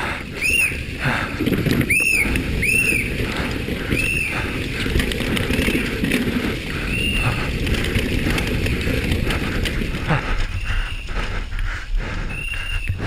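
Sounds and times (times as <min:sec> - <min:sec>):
mountain bike rattling over trail: 0:00.0 - 0:13.0.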